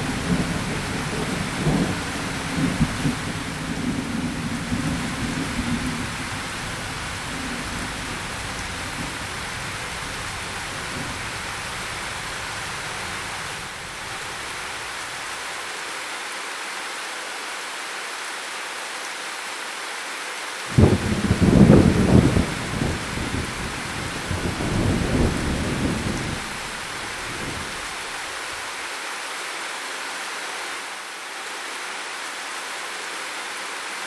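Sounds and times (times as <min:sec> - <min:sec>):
thunder rumbling: 0:00.0 - 0:15.0, 0:20.7 - 0:28.6
rain hiss: 0:00.0 - 0:34.0.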